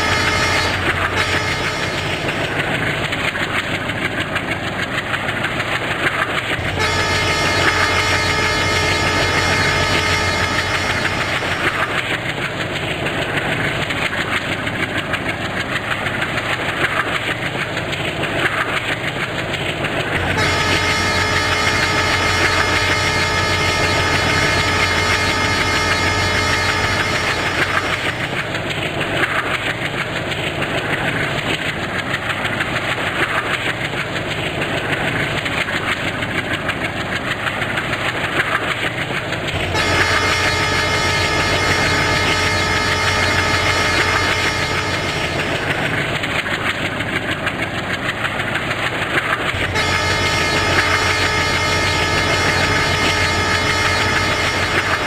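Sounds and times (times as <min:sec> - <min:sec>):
train rumbling and rattling: 0:00.0 - 0:55.0
steady tone: 0:20.2 - 0:28.4, 0:39.8 - 0:46.3.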